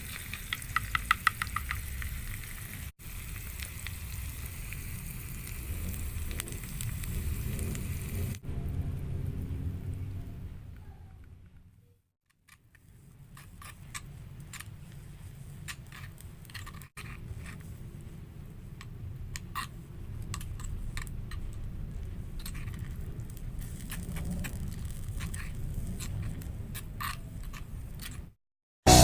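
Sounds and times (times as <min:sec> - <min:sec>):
low steady rumble: 0:03.2 - 0:11.9
light clicks and scrapes of objects: 0:12.3 - 0:28.4.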